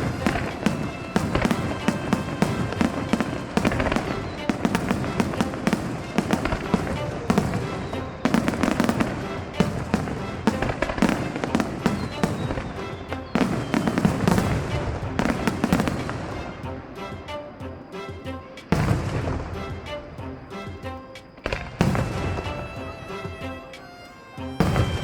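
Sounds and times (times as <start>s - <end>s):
fireworks bursting and crackling: 0.0s - 25.0s
music from loudspeakers: 0.0s - 25.0s.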